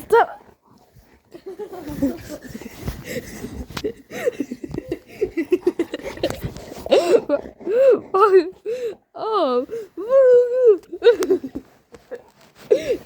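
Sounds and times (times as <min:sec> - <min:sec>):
scuffling and rustling: 0:00.5 - 0:07.3, 0:09.6 - 0:13.0
person laughing: 0:10.5 - 0:13.0.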